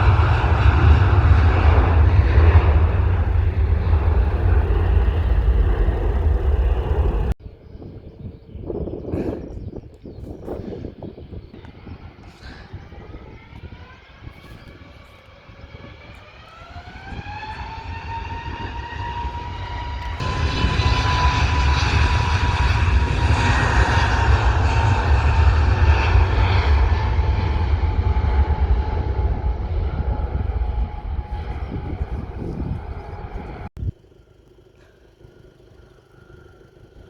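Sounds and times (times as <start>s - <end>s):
jet engines spooling up: 0.0s - 7.4s, 11.6s - 37.0s
loud deep rumble: 0.0s - 7.4s, 16.6s - 34.1s.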